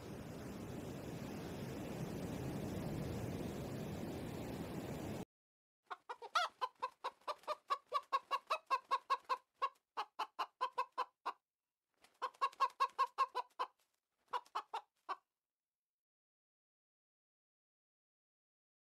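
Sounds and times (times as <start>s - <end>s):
chickens clucking: 5.9s - 11.4s, 12.2s - 15.2s.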